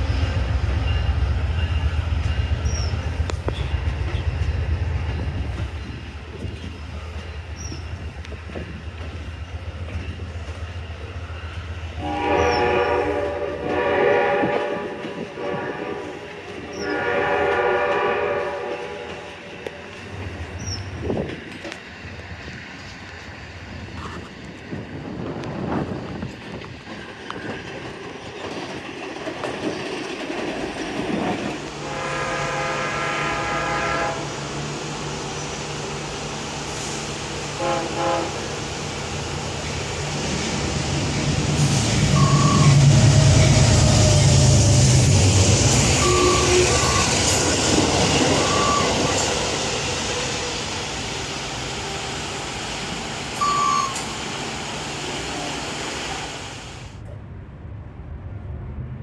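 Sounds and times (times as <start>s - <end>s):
passenger train rumbling by: 0.0s - 59.0s
train horn blasts: 12.0s - 19.8s, 31.7s - 34.4s, 37.5s - 38.6s, 42.1s - 44.6s, 45.8s - 49.2s.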